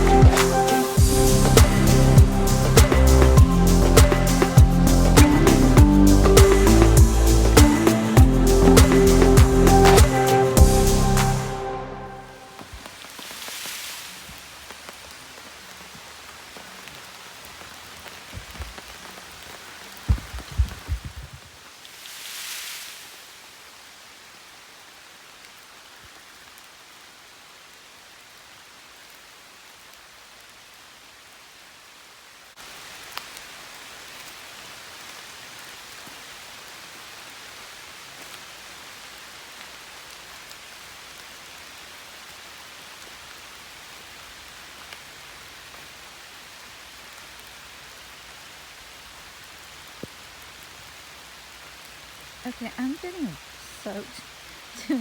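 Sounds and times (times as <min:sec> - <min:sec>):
steady rain hiss: 0:00.0 - 0:55.0
rain drop ticks: 0:12.6 - 0:21.4, 0:49.8 - 0:50.8.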